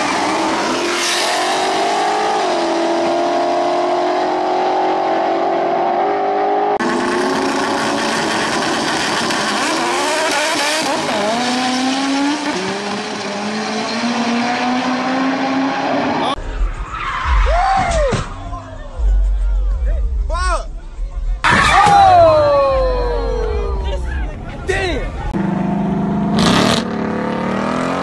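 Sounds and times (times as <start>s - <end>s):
car engines at full throttle: 0.0s - 16.5s, 22.6s - 28.0s.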